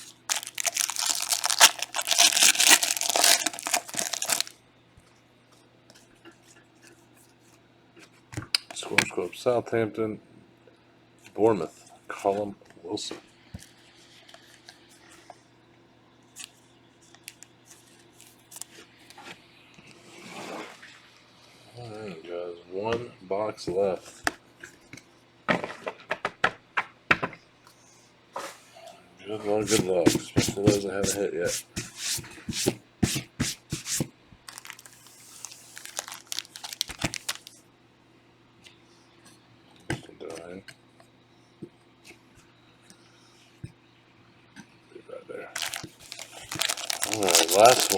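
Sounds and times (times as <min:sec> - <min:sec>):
cards clicking and crinkling: 0:00.0 - 0:04.5, 0:29.6 - 0:32.0, 0:32.6 - 0:37.6, 0:45.6 - 0:47.9
wrapper rustling: 0:00.0 - 0:04.5, 0:29.6 - 0:37.6, 0:45.6 - 0:47.9.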